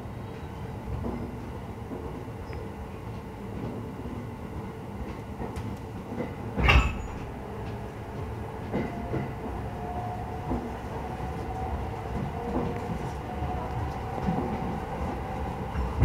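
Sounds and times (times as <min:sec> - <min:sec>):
train wheels rumbling on rail: 0:00.0 - 0:16.0
clicks of wheels on rail: 0:05.0 - 0:09.6, 0:10.4 - 0:16.0.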